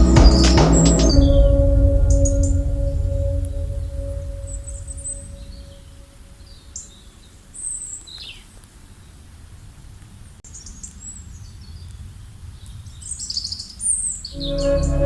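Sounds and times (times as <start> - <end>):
low rumble: 0.0 - 6.6
birds chirping: 0.0 - 8.5
ringing tone: 14.4 - 15.0.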